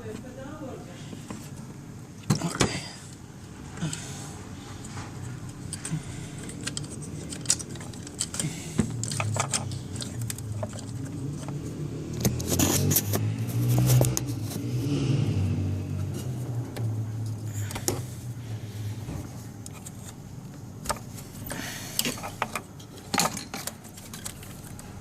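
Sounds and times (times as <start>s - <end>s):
metal tools clicking and clinking: 5.5s - 11.5s, 22.0s - 24.8s.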